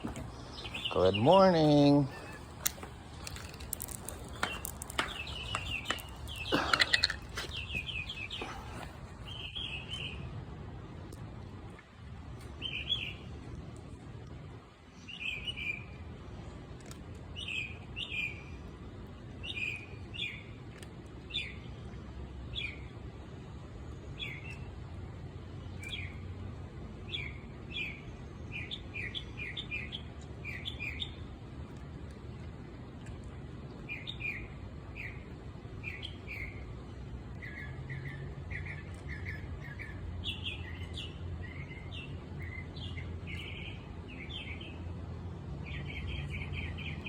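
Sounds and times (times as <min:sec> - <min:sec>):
low outdoor rumble: 0:00.0 - 0:15.0
small bird chirping: 0:00.2 - 0:08.5.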